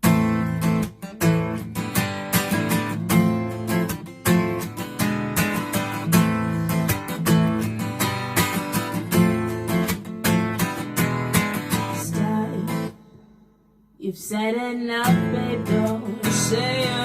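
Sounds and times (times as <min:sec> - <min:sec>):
acoustic guitar strumming: 0:00.0 - 0:13.2, 0:15.0 - 0:17.0.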